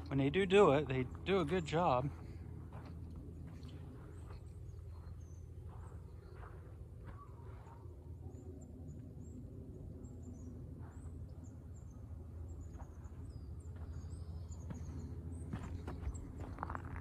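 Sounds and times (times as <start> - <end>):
footsteps on sandy dirt: 0.0 - 8.0, 12.6 - 17.0
low steady rumble: 0.0 - 17.0
small birds chirping: 0.0 - 17.0.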